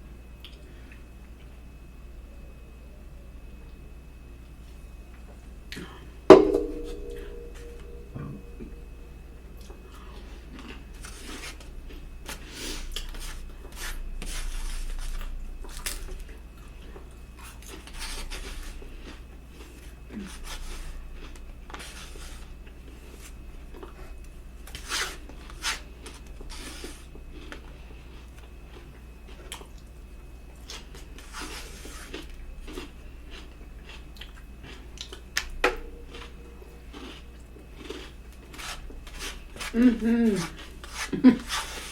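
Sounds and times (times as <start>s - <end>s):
chewing and lip smacking: 28.3s - 29.9s, 32.1s - 38.5s.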